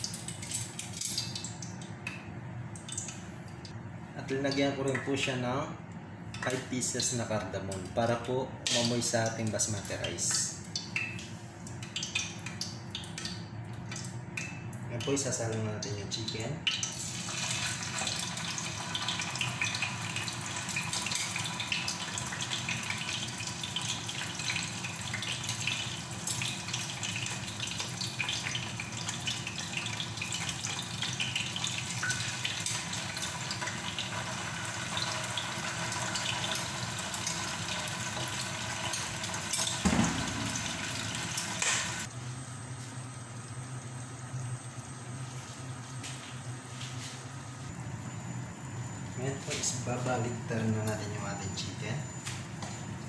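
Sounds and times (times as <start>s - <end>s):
chicken sizzling in hot oil: 16.9s - 42.1s.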